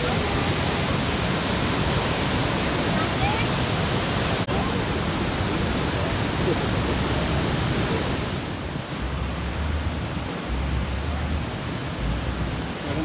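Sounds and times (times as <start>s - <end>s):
waterfall: 0.0s - 13.0s.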